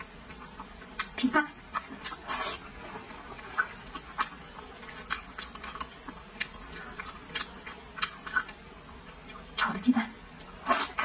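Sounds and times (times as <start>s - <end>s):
wet chewing clicks and smacks: 0.2s - 2.2s, 3.0s - 9.5s.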